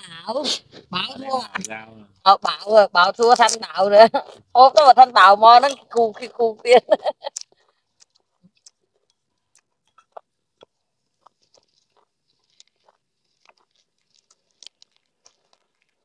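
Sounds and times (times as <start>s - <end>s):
faint chewing: 3.1s - 16.0s
small eating clicks and taps: 5.6s - 16.0s.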